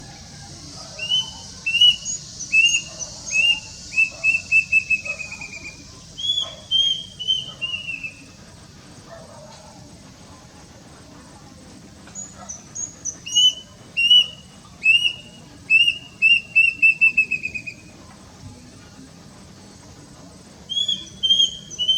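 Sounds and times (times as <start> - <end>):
cuckoo whistled song: 0.0 - 8.4, 12.1 - 18.0, 20.6 - 21.9.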